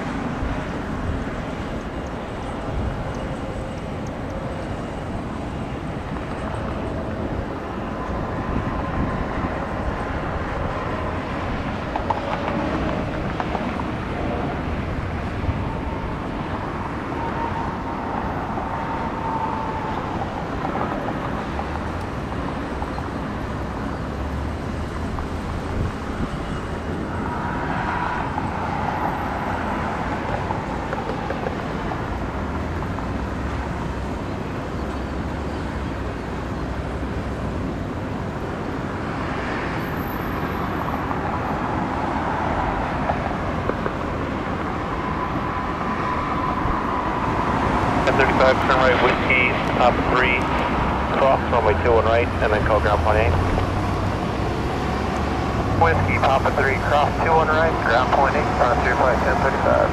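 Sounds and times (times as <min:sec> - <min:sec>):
engine noise: 0:38.4 - 0:59.9
faint whine: 0:44.8 - 0:59.9.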